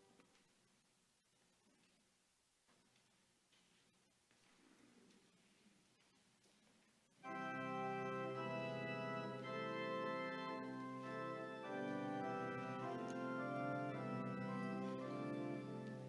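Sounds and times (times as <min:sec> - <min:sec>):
organ playing sustained chords: 0:07.2 - 0:16.0.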